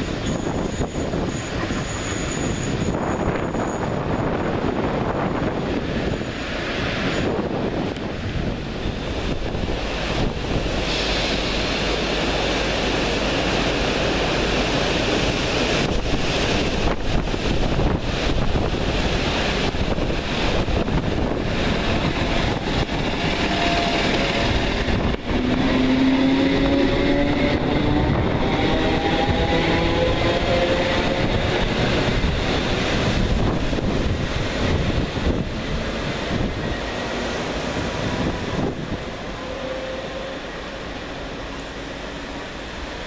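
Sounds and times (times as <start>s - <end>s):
wind rumble on microphone: 0.0s - 10.9s, 15.2s - 39.3s
train wheels rumbling on rails: 0.0s - 43.0s
rising motor whine: 25.2s - 31.9s.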